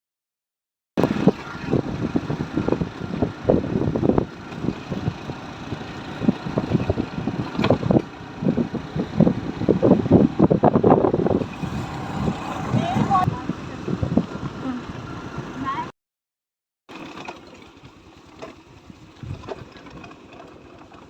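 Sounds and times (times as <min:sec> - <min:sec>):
wind buffeting microphone: 0:01.0 - 0:15.9, 0:18.7 - 0:20.0.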